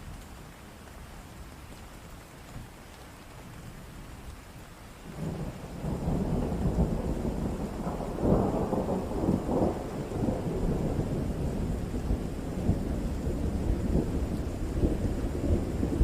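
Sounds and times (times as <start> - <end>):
steady rain: 0.0 - 16.0
rolling thunder: 5.1 - 16.0.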